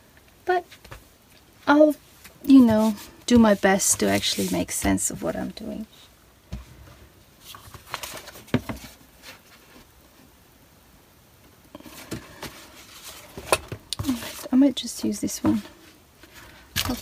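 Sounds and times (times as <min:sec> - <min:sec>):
cardboard taps slides and rustles: 0:06.5 - 0:09.9.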